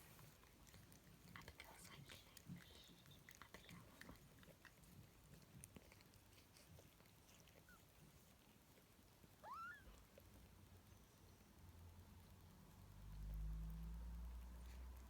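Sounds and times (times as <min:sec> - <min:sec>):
faint squeak: 0:09.4 - 0:10.0
kitten mewing: 0:09.4 - 0:10.1.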